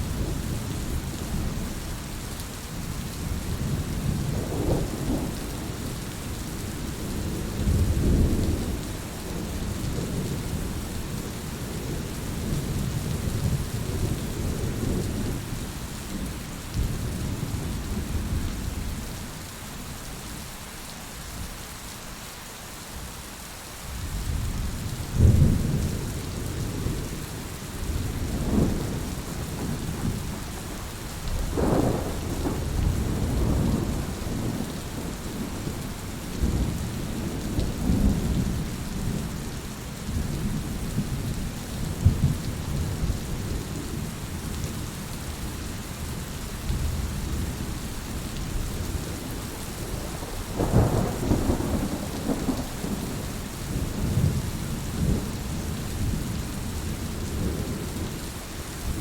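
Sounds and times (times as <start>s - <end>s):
heavy rain: 0.0s - 59.0s
thunder rumbling: 27.8s - 39.4s, 48.5s - 56.2s.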